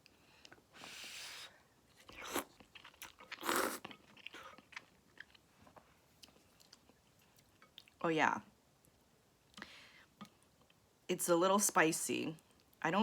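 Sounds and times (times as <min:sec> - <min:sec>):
chewing with wet clicks: 0:01.9 - 0:08.0
person slurping noodles: 0:02.1 - 0:02.5, 0:03.3 - 0:03.8.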